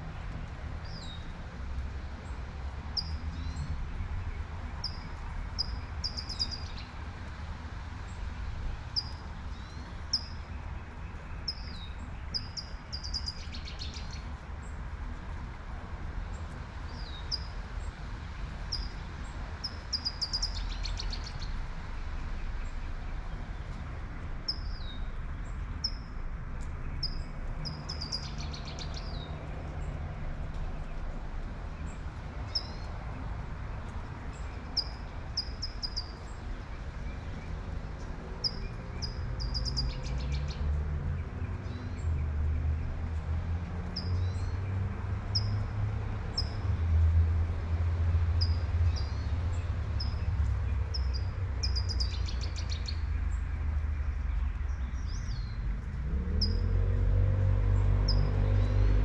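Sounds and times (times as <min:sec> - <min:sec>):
songbird singing with trill: 0:03.0 - 0:03.7, 0:04.7 - 0:07.0, 0:09.0 - 0:10.5, 0:11.1 - 0:14.3, 0:18.7 - 0:19.0, 0:19.6 - 0:21.5, 0:24.5 - 0:25.1, 0:26.8 - 0:29.3, 0:32.5 - 0:32.9, 0:34.4 - 0:40.6, 0:45.3 - 0:45.6, 0:48.4 - 0:55.7, 0:56.4 - 0:56.7
passing car rumble: 0:21.5 - 0:59.0.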